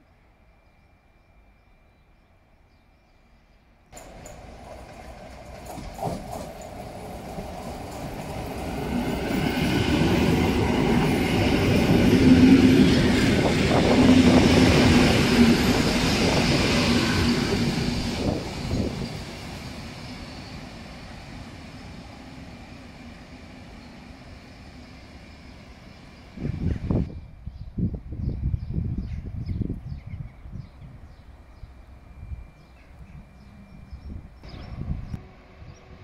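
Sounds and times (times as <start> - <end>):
electric train rumbling past: 0.0 - 36.0
wheels clicking over rail joints: 4.0 - 11.2.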